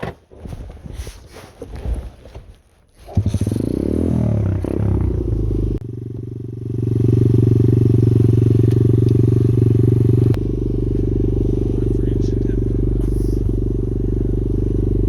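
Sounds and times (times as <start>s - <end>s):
motorbike engine running: 3.1s - 15.0s.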